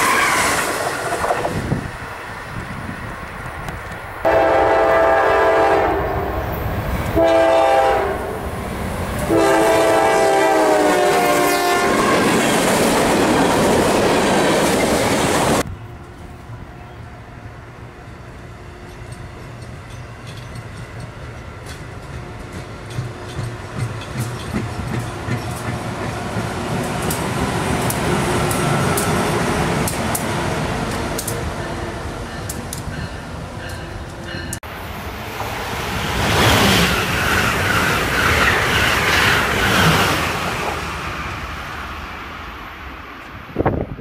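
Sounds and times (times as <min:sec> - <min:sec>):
passenger train rushing by: 0:00.0 - 0:44.0
train rumble: 0:00.0 - 0:44.0
train wheels clicking over rail joints: 0:18.7 - 0:34.6.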